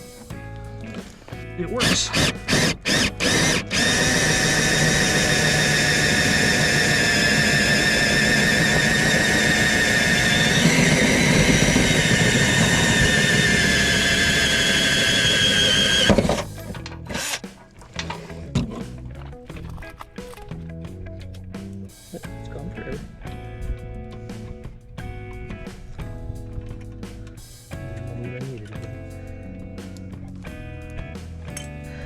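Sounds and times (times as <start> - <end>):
power drill whining: 1.7 - 18.7.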